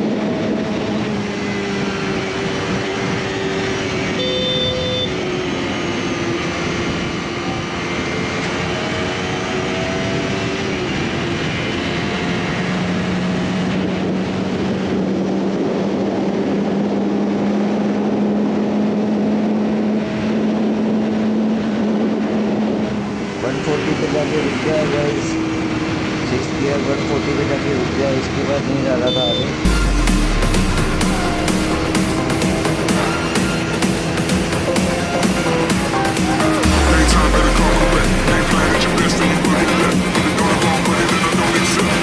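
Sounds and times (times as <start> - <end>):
wind rush: 0.0 - 4.2
motorcycle engine droning: 0.0 - 42.0
short beep: 4.2 - 5.2, 29.1 - 32.3.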